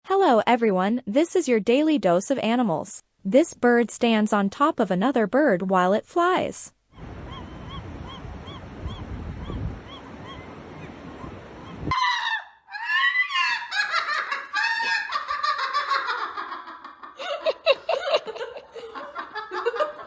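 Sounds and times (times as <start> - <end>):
wind-like noise: 7.0 - 12.0.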